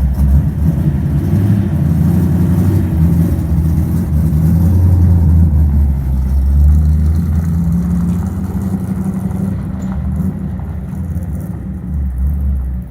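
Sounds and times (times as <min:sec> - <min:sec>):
deep truck engine: 0:00.0 - 0:12.9.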